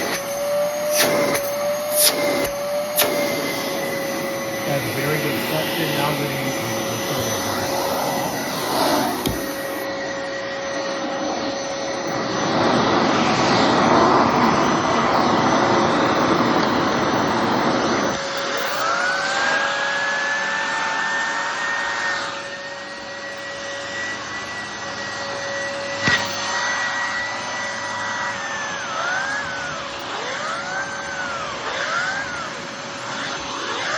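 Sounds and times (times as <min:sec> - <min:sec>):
vacuum cleaner motor hum: 0:00.0 - 0:33.9
whistling whine: 0:00.0 - 0:33.9
sharp click: 0:00.9 - 0:03.6.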